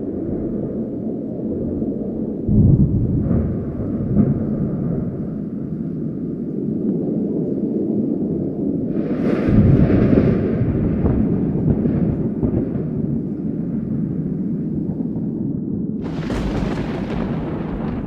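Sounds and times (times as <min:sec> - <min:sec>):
thunder rumbling: 0:00.0 - 0:18.0
thunder crack: 0:02.5 - 0:06.2, 0:09.0 - 0:18.0.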